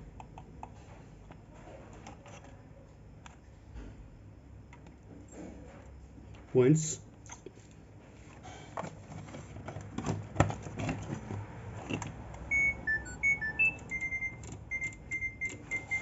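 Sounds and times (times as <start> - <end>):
control board buzzer beeping: 12.5 - 16.0.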